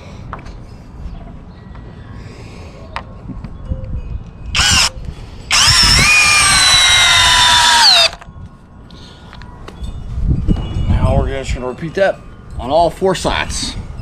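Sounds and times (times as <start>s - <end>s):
power drill driving a screw: 4.6s - 4.9s, 5.5s - 8.2s.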